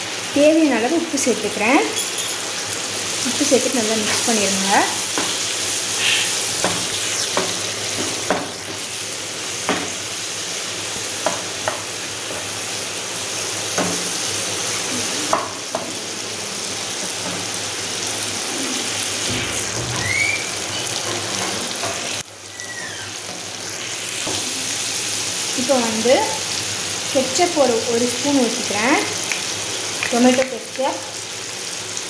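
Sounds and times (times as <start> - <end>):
chicken sizzling in hot oil: 0.0 - 32.0
spatula scraping and tapping pan: 6.6 - 8.8.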